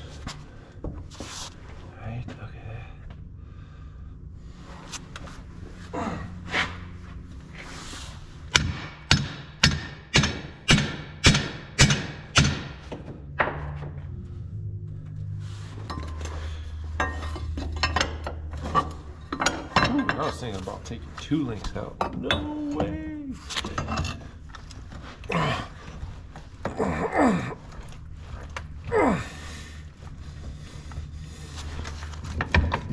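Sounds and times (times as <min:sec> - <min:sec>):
light metal clanks: 0:15.8 - 0:20.9.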